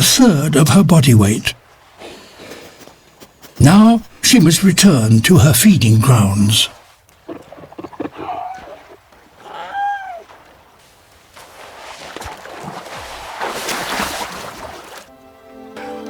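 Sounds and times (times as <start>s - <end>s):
water noise: 0.0s - 15.2s
seal crying: 7.3s - 10.4s.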